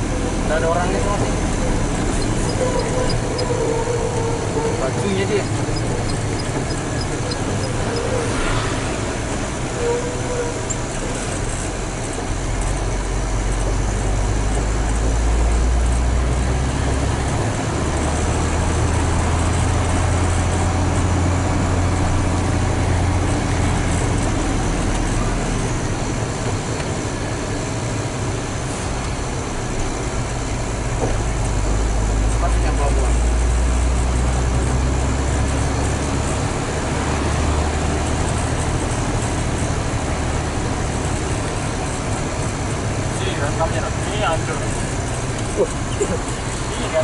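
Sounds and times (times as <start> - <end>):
truck diesel engine and road noise: 0.0 - 47.0.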